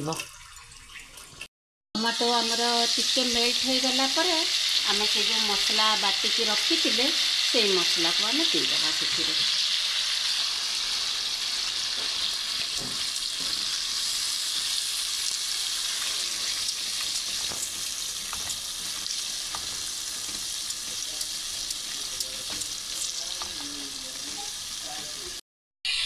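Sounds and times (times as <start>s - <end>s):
paste sizzling in hot oil: 2.1s - 26.0s
spatula scraping and tapping pan: 12.0s - 13.8s, 16.0s - 24.6s.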